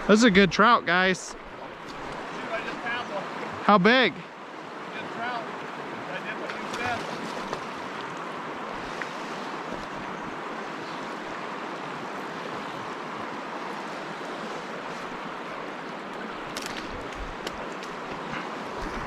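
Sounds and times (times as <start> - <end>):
fast stream rushing: 0.0 - 19.0.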